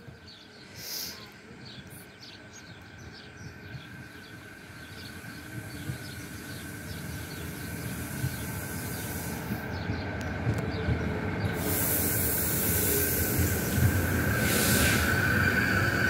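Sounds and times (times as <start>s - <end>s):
train rumbling past: 0.0s - 16.0s
hiss of passing cars: 0.6s - 1.4s, 4.1s - 10.0s, 11.4s - 16.0s.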